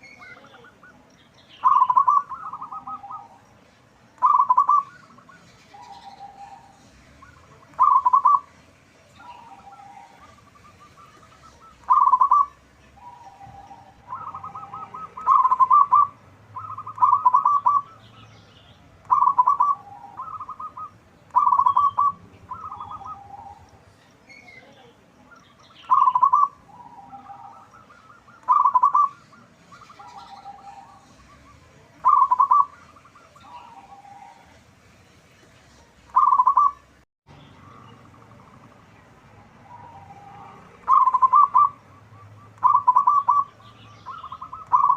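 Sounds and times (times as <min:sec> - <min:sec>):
dove cooing: 0:01.6 - 0:03.5, 0:04.2 - 0:08.6, 0:09.2 - 0:18.1, 0:19.0 - 0:23.8, 0:25.8 - 0:34.6, 0:36.1 - 0:36.9, 0:39.4 - 0:44.9.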